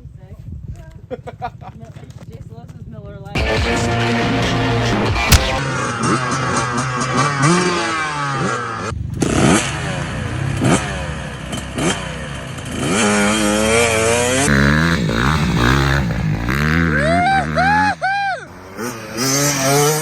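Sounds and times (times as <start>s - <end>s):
dirt bike engines revving: 3.3s - 20.0s.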